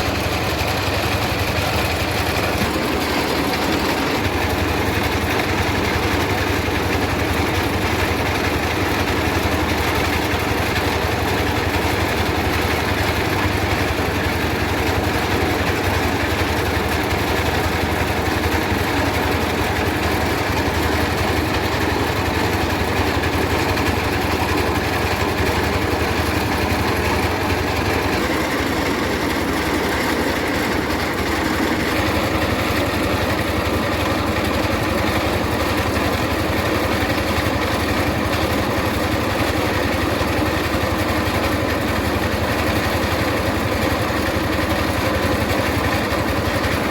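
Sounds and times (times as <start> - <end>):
engine hum: 0.0 - 46.9
rice mill rushing noise: 0.0 - 46.9.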